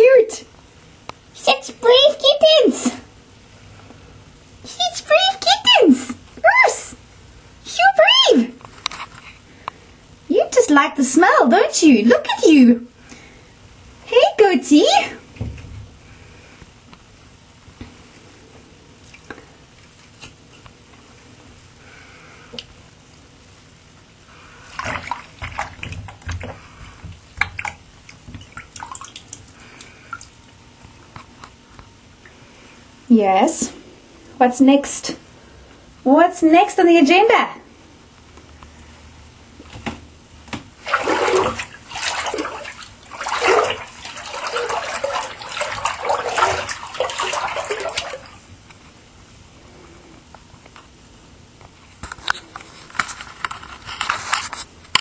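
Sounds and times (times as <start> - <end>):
bathwater splashing: 24.5 - 30.5, 40.5 - 48.5.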